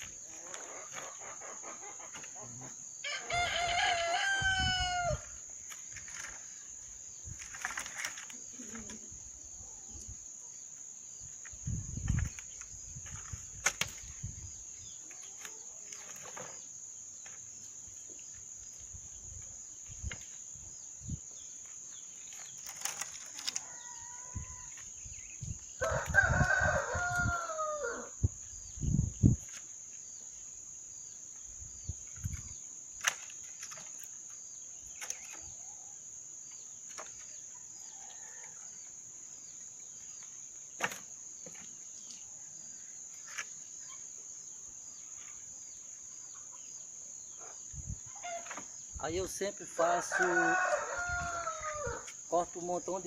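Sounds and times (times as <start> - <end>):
rooster crowing: 3.0 - 5.4, 23.6 - 24.8, 25.8 - 28.2, 49.8 - 52.1.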